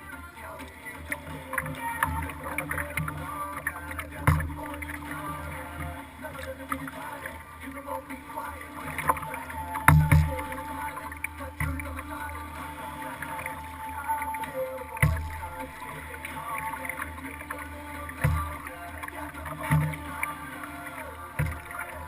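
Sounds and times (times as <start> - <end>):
water lapping against hull: 0.0 - 22.0
dull thumps: 4.0 - 5.2, 8.9 - 10.7, 21.4 - 22.0.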